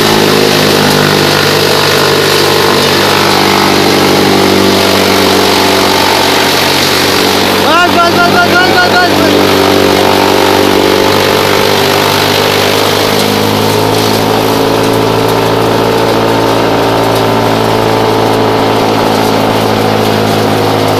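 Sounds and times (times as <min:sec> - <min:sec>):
tractor diesel engine drone: 0:00.0 - 0:20.9.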